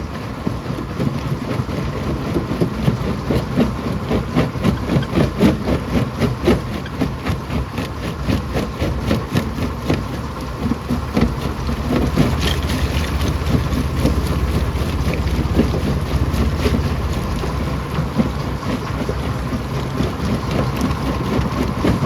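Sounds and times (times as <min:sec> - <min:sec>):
crusher machinery drone: 0:10.2 - 0:22.0
rocks clattering and cracking: 0:10.9 - 0:22.0.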